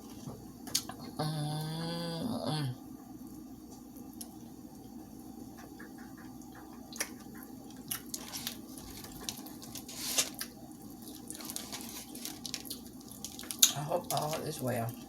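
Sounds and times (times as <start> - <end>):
steady low hum: 0.0 - 15.0
person chewing crispy chicken: 6.9 - 13.7.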